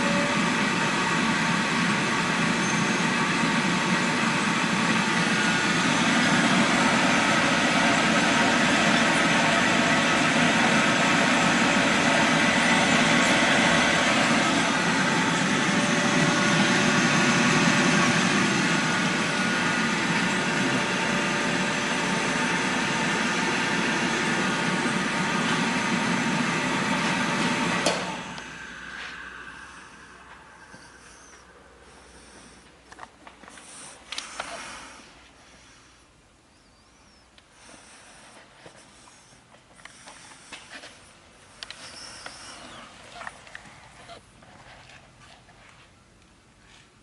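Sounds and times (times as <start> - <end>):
dryer machine whirring: 0.0 - 35.2.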